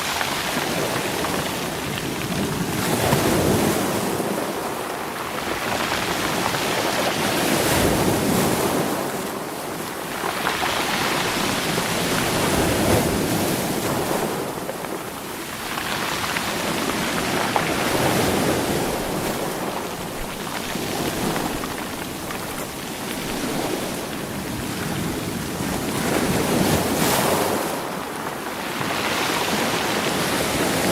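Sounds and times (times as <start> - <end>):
waves washing over stones: 0.0 - 30.9
rocks rolling and clattering: 7.9 - 27.5.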